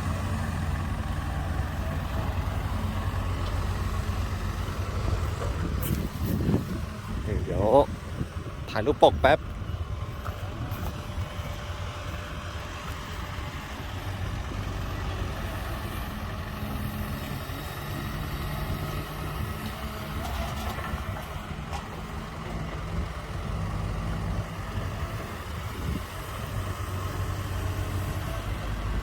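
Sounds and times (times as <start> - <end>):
diesel truck engine droning: 0.0 - 29.0.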